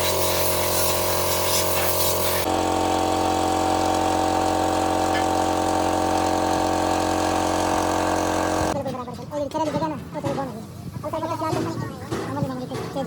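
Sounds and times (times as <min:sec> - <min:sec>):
engine idling: 0:00.0 - 0:08.8.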